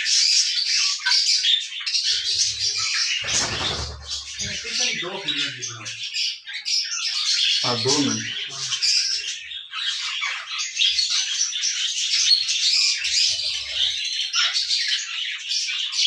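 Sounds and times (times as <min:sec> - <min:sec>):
birds chirping and squawking: 0:00.0 - 0:16.0.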